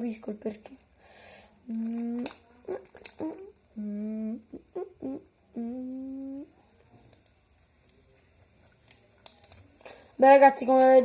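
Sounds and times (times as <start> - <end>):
boy humming long notes: 3.3 - 6.5.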